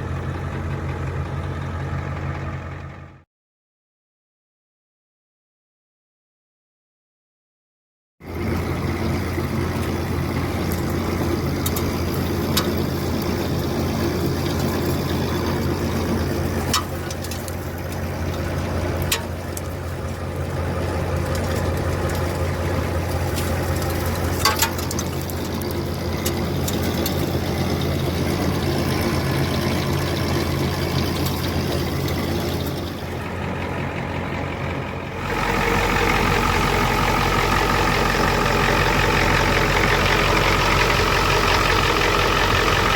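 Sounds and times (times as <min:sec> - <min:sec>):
truck engine idling: 0:00.0 - 0:03.2, 0:08.2 - 0:42.9.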